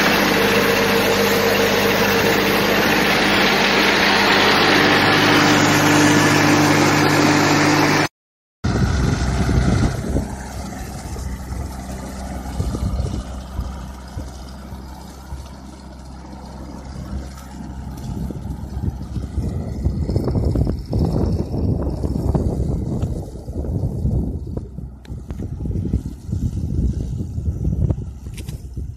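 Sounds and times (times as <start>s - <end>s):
tractor engine running: 0.0s - 28.9s
wind buffeting microphone: 8.7s - 15.4s, 16.9s - 28.9s.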